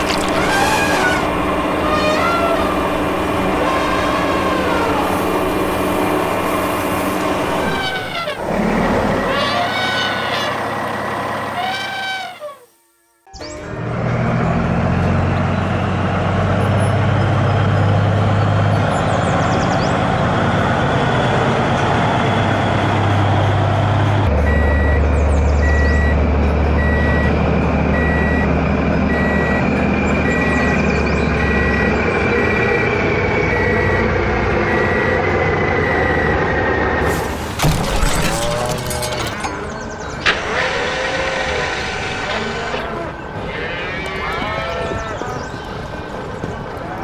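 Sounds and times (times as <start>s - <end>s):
heavy truck engine running: 0.0s - 12.8s, 13.4s - 43.5s
reversing beeper: 24.3s - 40.8s.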